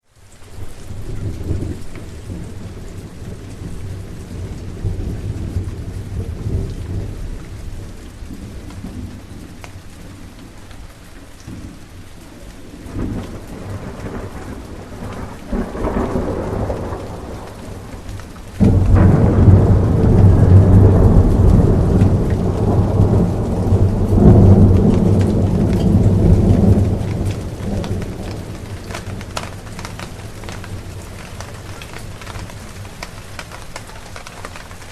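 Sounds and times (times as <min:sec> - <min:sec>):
steady rain falling: 0:00.0 - 0:34.9
thunder rumbling and cracking: 0:00.5 - 0:34.9.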